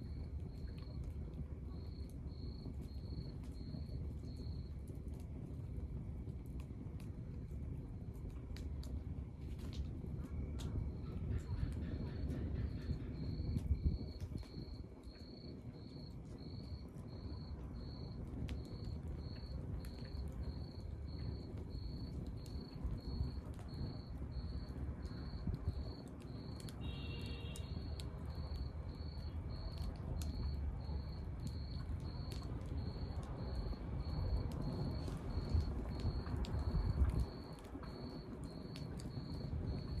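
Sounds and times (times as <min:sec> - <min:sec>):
wood fire crackling: 0:00.0 - 0:40.0
cricket chirping: 0:10.3 - 0:40.0.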